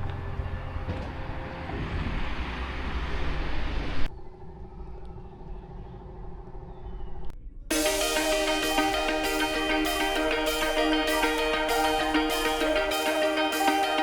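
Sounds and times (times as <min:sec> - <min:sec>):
vehicle engine rumbling: 0:00.0 - 0:07.3
steady hum: 0:07.7 - 0:14.0.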